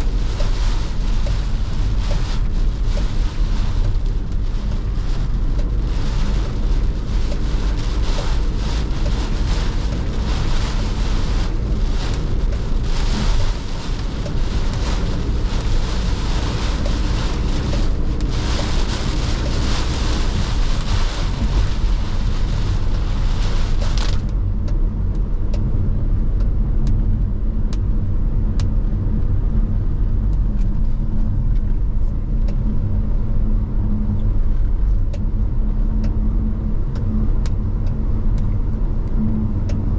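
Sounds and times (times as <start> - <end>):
rain and tyre spray hiss: 0.0 - 24.6
car engine and road rumble: 0.0 - 39.9.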